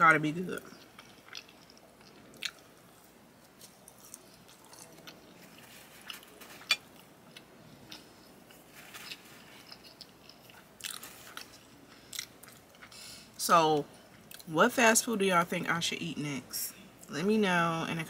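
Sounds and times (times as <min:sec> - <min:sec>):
person chewing crunchy toast: 0:00.7 - 0:13.0.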